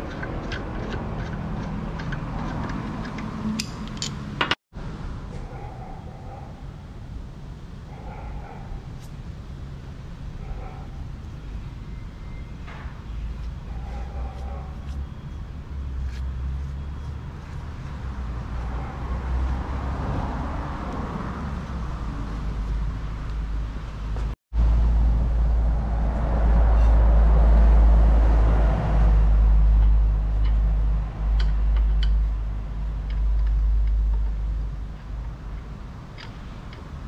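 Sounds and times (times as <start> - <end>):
car engine rumbling: 13.0 - 37.0.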